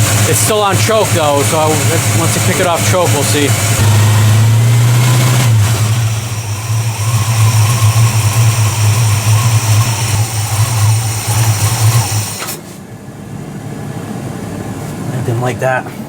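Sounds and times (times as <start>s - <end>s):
engine idling unevenly: 0.0s - 15.8s.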